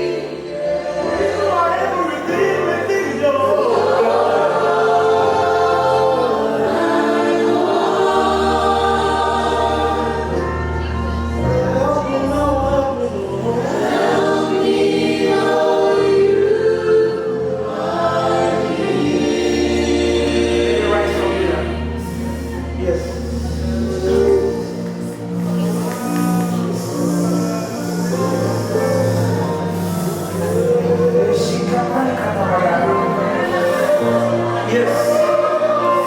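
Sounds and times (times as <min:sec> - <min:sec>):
bass and keyboard chords: 0:00.0 - 0:36.0
choir singing: 0:00.0 - 0:36.0.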